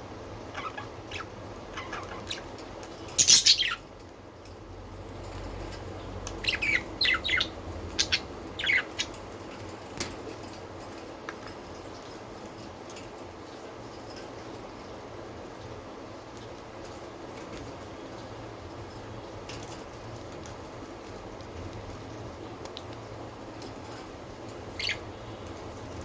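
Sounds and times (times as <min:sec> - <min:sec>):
budgerigars chirping: 0:00.5 - 0:02.5, 0:03.2 - 0:03.8, 0:06.4 - 0:09.2, 0:24.7 - 0:25.1.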